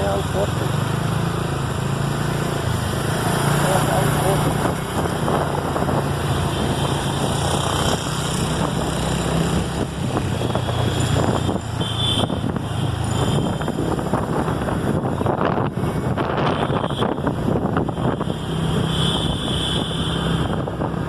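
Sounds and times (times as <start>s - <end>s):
road traffic: 0.0s - 21.0s
wind buffeting microphone: 4.1s - 18.9s.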